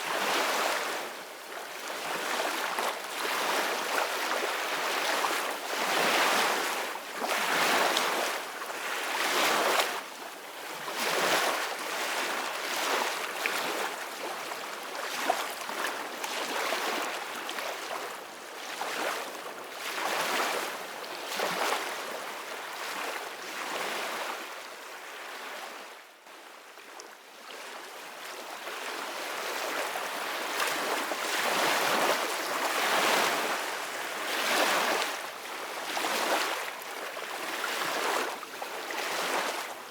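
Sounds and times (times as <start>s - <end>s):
ocean waves breaking on shore: 28.3s - 39.8s.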